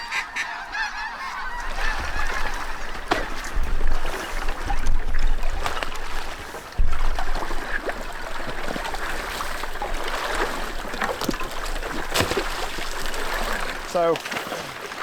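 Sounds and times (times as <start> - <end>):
water sloshing and trickling: 0.4 - 15.0.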